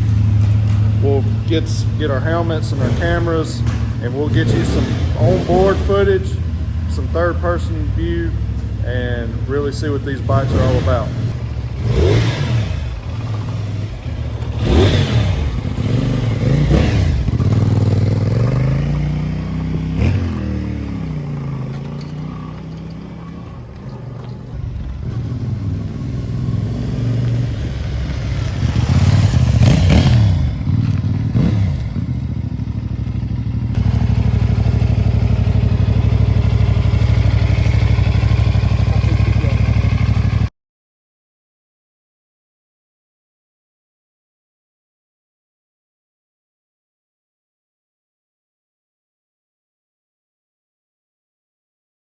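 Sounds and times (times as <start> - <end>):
motorcycle engine accelerating: 0.0 - 40.5.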